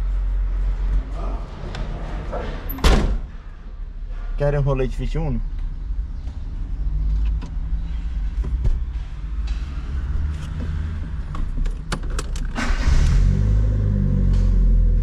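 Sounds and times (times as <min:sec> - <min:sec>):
sharp clicks and rattles: 0:11.2 - 0:12.7.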